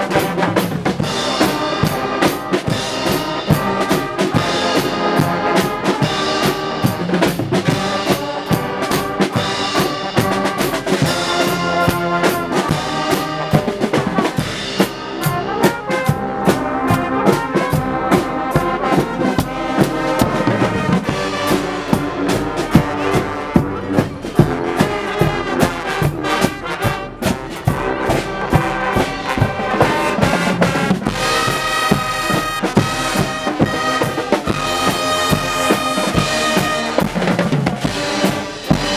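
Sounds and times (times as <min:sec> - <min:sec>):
brass band music: 0:00.0 - 0:38.9
steady drum beat: 0:00.0 - 0:38.9.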